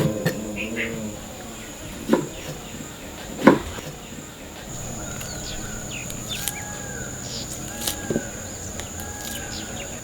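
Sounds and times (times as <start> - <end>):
insects droning: 0.0 - 10.0
birds chirping and whistling: 4.7 - 10.0.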